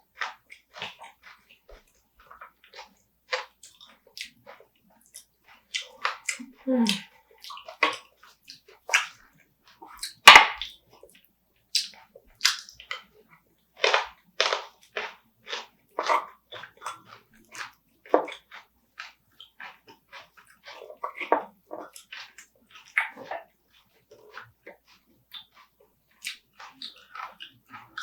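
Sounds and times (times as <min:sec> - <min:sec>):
crab shell crunching: 0:10.0 - 0:10.7, 0:13.8 - 0:16.3
loud sharp crack: 0:10.3 - 0:10.6.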